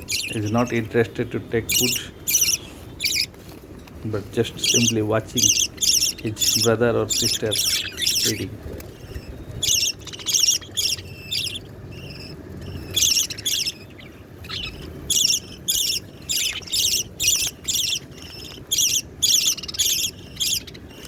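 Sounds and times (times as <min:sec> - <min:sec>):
budgerigar chicks begging calls: 0:00.0 - 0:03.4, 0:04.1 - 0:21.0.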